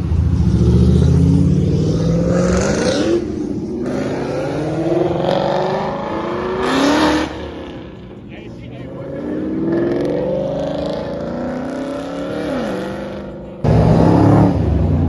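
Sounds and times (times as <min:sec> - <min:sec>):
car engine accelerating hard: 0:09.0 - 0:15.0.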